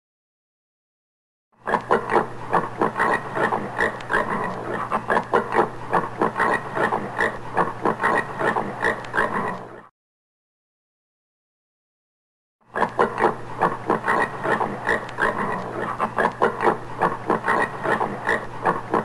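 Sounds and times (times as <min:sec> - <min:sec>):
warthog calling: 0:01.6 - 0:09.9, 0:12.7 - 0:19.0.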